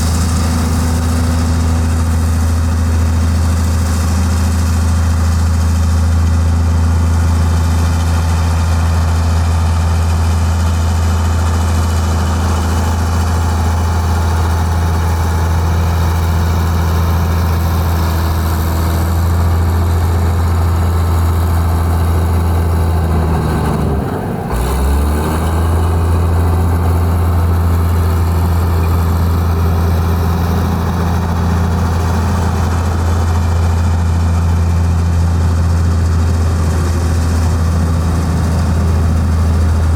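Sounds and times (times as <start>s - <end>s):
heavy diesel engine humming: 0.0s - 39.9s.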